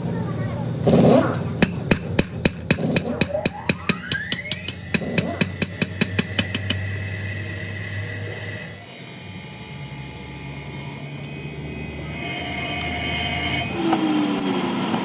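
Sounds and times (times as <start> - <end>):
machine high whine: 0.8 - 15.0
hammer strikes on metal: 1.5 - 7.0.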